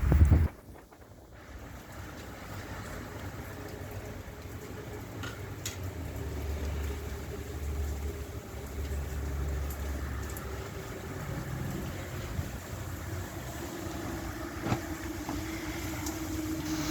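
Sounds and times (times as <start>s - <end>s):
vehicle engine rumbling: 6.1s - 16.9s.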